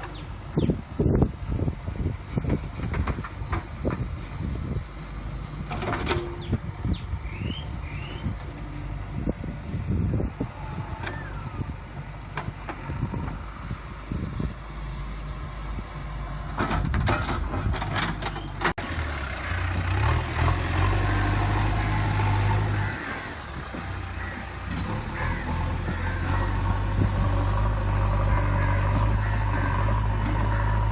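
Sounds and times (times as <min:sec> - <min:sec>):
backhoe diesel engine running: 0:00.0 - 0:30.9.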